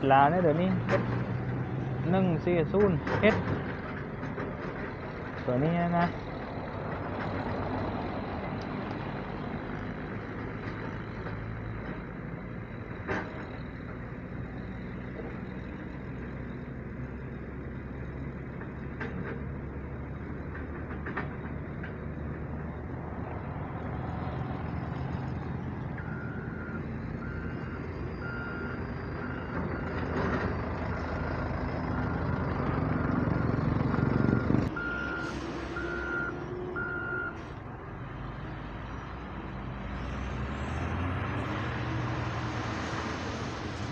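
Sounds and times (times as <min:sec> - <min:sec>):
heavy diesel machinery running: 0:00.0 - 0:43.9
reversing alarm beeping: 0:26.0 - 0:30.0, 0:34.0 - 0:37.4.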